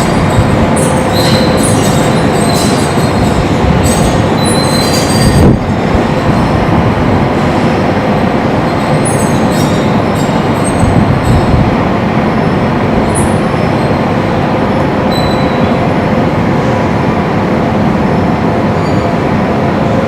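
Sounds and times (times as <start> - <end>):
high metallic squealing: 0.0 - 6.6, 8.6 - 11.6, 15.1 - 15.8
strong wind on metal sheeting: 0.0 - 20.0.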